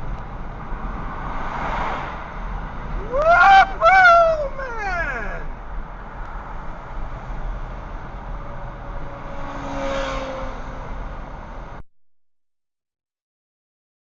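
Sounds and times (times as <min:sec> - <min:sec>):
car road and engine noise: 0:00.0 - 0:11.8
vehicle passing: 0:06.4 - 0:11.8.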